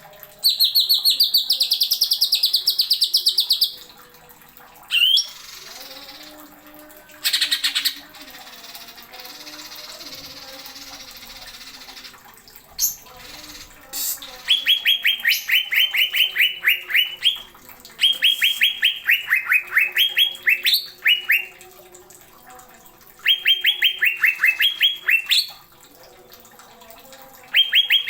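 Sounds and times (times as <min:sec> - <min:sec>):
bird whistling song: 0:04.9 - 0:06.3, 0:12.8 - 0:21.5, 0:23.2 - 0:25.5, 0:27.5 - 0:28.0.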